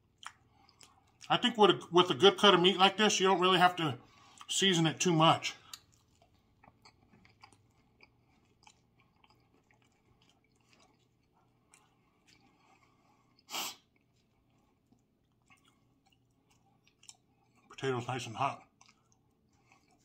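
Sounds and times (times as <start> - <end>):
man chewing: 0.0 - 1.3, 4.1 - 4.5, 5.6 - 17.8, 18.6 - 20.0.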